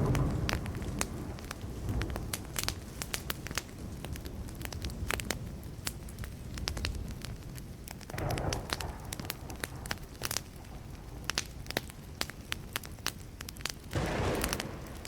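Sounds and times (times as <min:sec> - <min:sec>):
distant thunder rumble: 0:00.0 - 0:02.6, 0:08.1 - 0:11.3, 0:14.0 - 0:15.0
wood fire crackling: 0:00.0 - 0:15.0.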